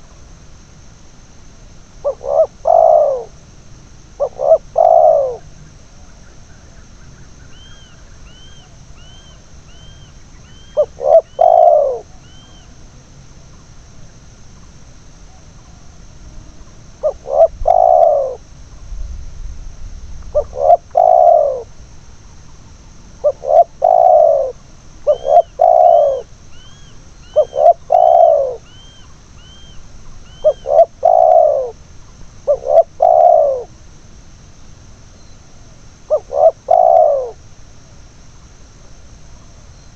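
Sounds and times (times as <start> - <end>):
faint high-pitched hum: 0.0 - 39.9
doves cooing: 2.0 - 13.1, 15.2 - 18.5, 20.2 - 21.8, 23.1 - 33.9, 35.2 - 37.6
small high bird chirps: 6.2 - 12.8, 25.1 - 33.7.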